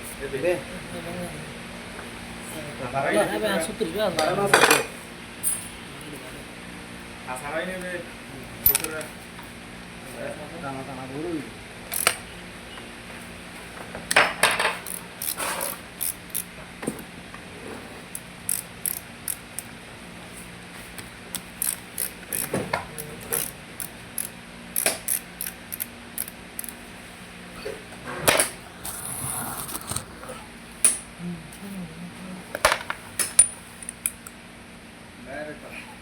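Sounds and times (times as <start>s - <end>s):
metal tools clicking: 8.6s - 9.1s, 11.9s - 12.2s, 14.8s - 16.5s, 18.2s - 19.7s, 21.3s - 26.8s, 33.2s - 34.3s.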